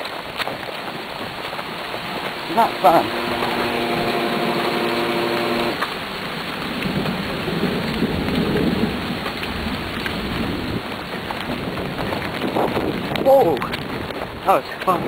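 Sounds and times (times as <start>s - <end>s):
heavy rain pouring: 0.0s - 15.0s
steady hum: 0.8s - 5.8s
low rumble of thunder: 6.0s - 14.4s.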